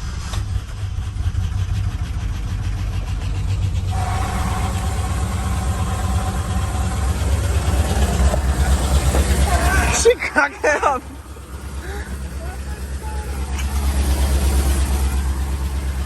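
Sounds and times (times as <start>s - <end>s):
pickup engine low rumble: 0.0s - 16.0s
higher steady tone: 3.9s - 16.0s.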